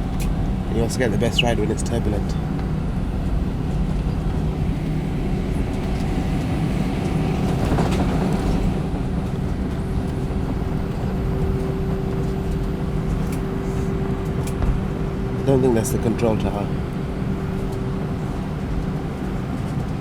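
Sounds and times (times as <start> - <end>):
steady hum: 0.0 - 7.8
aircraft cabin rumble: 0.0 - 20.0.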